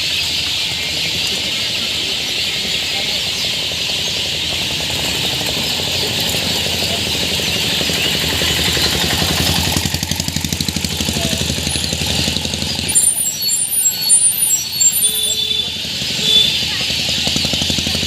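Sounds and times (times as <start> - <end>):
small birds chattering: 0.0 - 18.0
clear high chirps: 12.9 - 16.5.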